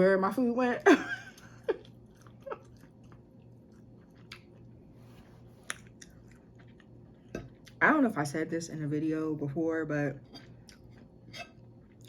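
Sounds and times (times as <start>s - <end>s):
person chewing food: 1.4s - 7.8s, 10.4s - 12.0s.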